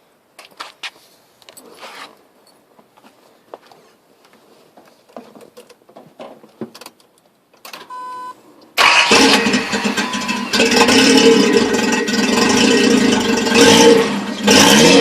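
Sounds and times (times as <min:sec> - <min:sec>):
short beep: 0:07.9 - 0:08.4, 0:10.0 - 0:10.5
car engine starting and running loudly: 0:08.8 - 0:15.0.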